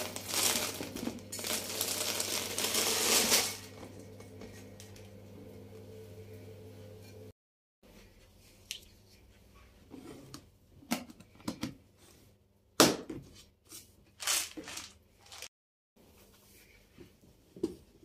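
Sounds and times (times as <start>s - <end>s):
low steady hum: 3.5s - 7.3s.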